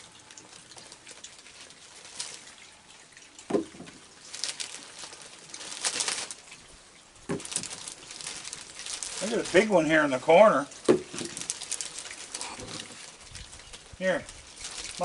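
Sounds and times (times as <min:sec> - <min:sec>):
heavy rain falling: 0:04.2 - 0:15.0.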